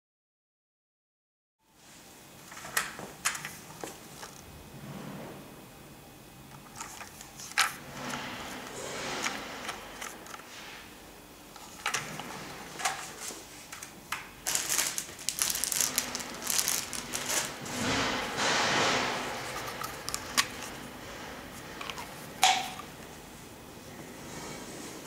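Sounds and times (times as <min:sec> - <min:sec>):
rustling: 0:14.4 - 0:22.4.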